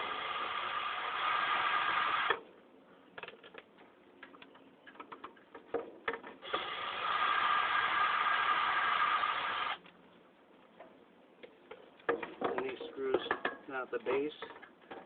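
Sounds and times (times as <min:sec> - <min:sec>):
cordless drill running: 0:06.4 - 0:09.8.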